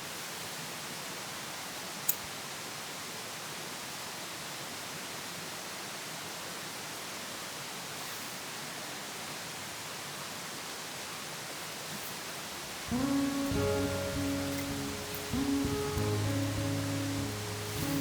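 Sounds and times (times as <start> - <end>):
steady hiss: 10.2 - 18.0.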